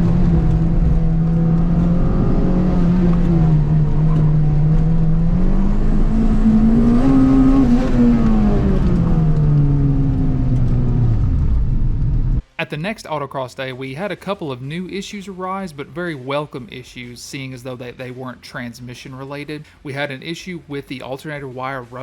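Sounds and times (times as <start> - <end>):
car engine running hard: 0.0 - 12.4.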